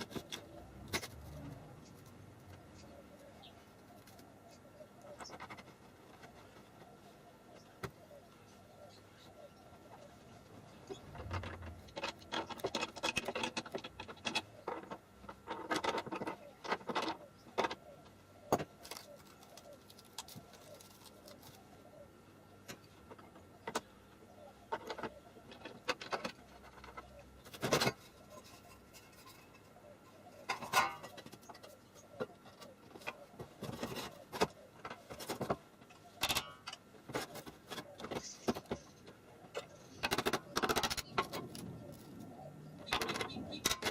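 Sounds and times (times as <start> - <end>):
hard objects clicking and rattling: 11.0 - 17.8, 30.4 - 43.9.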